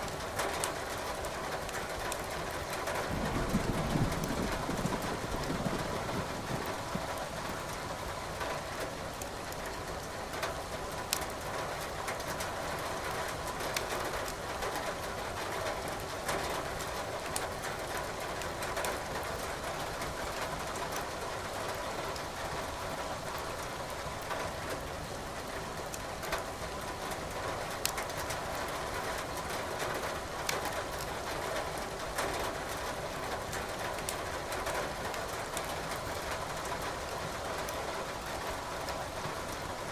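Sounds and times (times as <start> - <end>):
logs crackling in a fireplace: 27.8 - 28.2.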